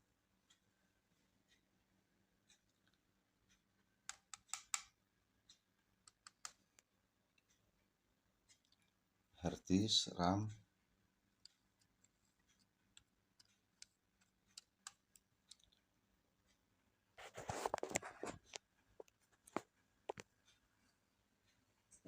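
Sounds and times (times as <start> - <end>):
clicks of small laptop parts: 4.1 - 5.0.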